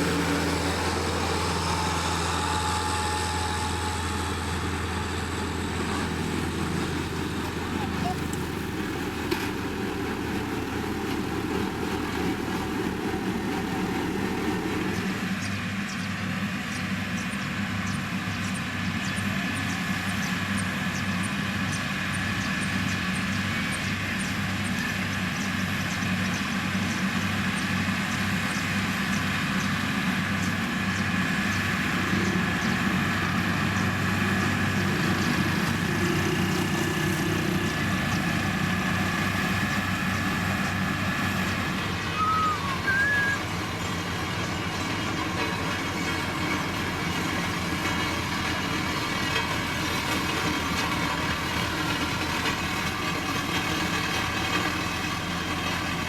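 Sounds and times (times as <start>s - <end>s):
diesel construction machine engine: 0.0s - 56.0s
high whine: 41.8s - 43.9s.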